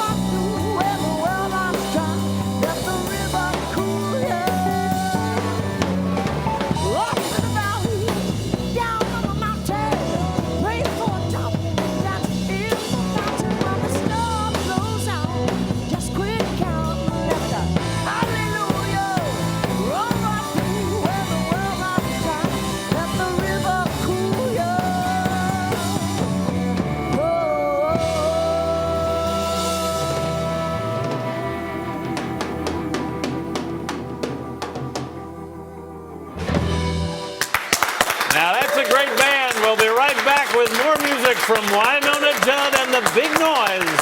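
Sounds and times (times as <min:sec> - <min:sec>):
drum kit: 0:00.0 - 0:35.6, 0:36.3 - 0:44.0
bass guitar: 0:00.0 - 0:44.0
lead guitar bending notes: 0:16.9 - 0:37.4.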